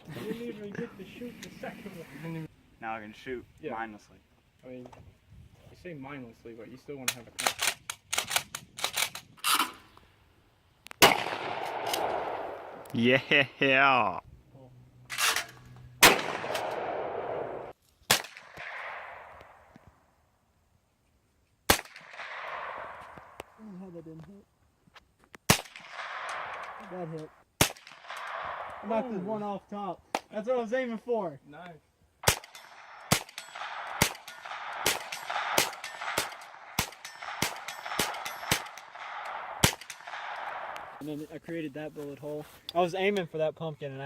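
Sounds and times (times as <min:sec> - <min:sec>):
gunshots with echo: 0:11.0 - 0:12.8, 0:16.0 - 0:19.3, 0:32.2 - 0:41.0
rapid gunfire: 0:32.2 - 0:40.8.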